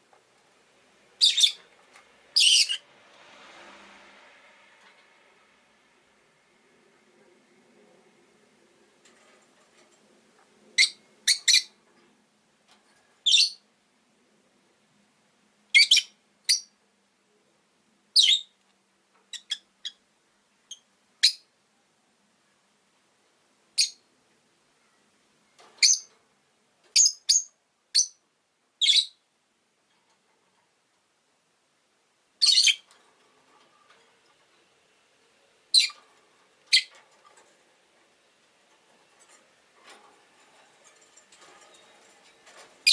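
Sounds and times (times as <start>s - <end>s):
lovebirds chirping: 1.2s - 1.7s, 2.4s - 2.8s, 10.8s - 11.8s, 13.2s - 13.6s, 23.8s - 24.1s, 25.8s - 26.2s, 26.9s - 28.2s, 28.8s - 29.2s, 32.4s - 32.9s, 35.7s - 36.0s, 36.7s - 37.0s.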